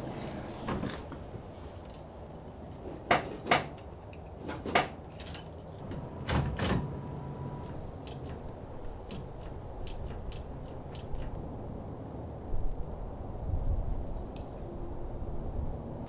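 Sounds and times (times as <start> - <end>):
sharp knocks and clatters: 2.8 - 7.0, 7.6 - 11.4.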